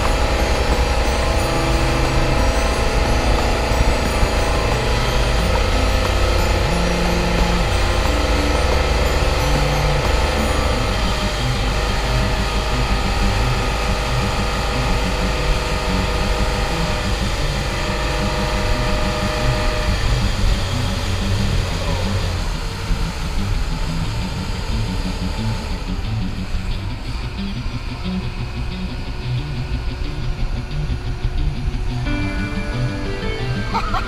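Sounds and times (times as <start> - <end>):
speed boat engine running: 0.0 - 34.0.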